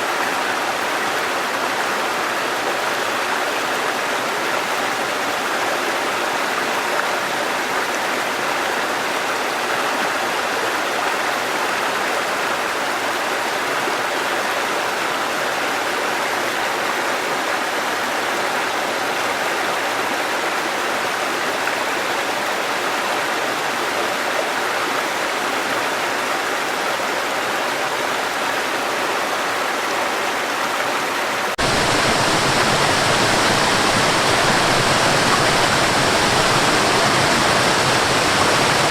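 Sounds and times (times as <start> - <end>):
waterfall roaring: 16.7 - 38.9.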